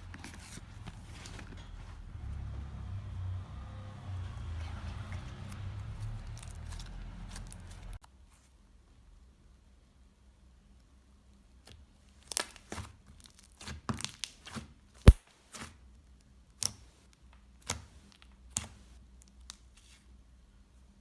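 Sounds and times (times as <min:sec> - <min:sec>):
slime crackling and popping: 0:11.6 - 0:15.2.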